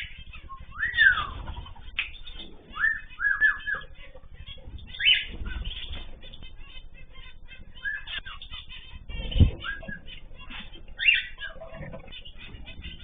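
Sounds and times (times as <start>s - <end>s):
cage birds chirping and calling: 0.0s - 13.0s.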